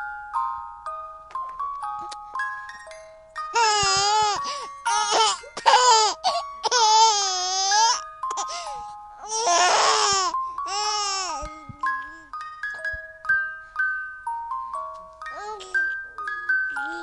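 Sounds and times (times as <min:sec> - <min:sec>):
music box tune: 0:00.0 - 0:17.0
baby crying: 0:03.6 - 0:11.6.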